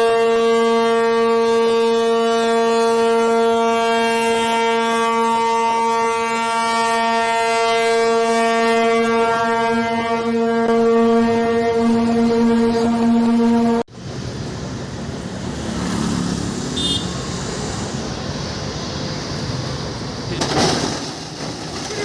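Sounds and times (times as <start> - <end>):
loud horn long note: 0.0 - 13.9.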